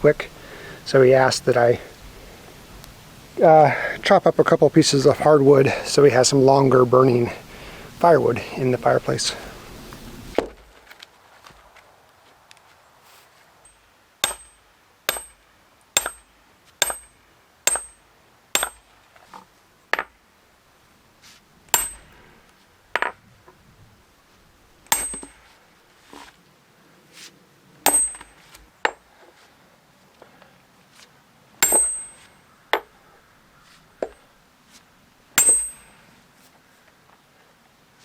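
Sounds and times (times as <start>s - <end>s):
wood splitting blows: 9.4s - 11.9s, 13.1s - 18.0s.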